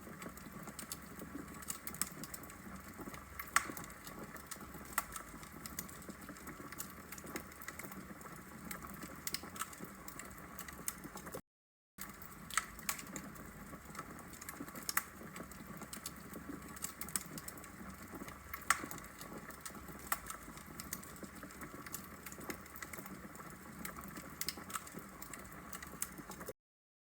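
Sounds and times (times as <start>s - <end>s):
wood fire crackling: 0.0s - 11.4s, 12.0s - 26.5s.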